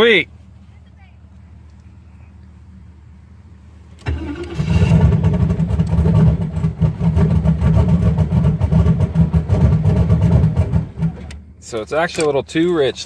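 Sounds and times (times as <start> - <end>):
engine starting and running unevenly: 3.9 - 12.9.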